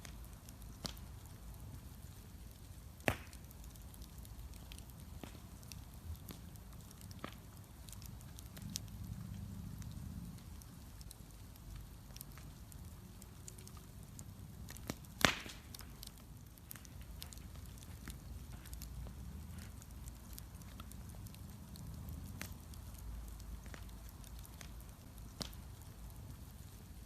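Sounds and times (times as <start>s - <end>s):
bonfire crackling: 0.0s - 27.0s
loud pop of wood: 3.0s - 3.4s, 15.2s - 15.7s
low steady rumble: 3.7s - 27.0s.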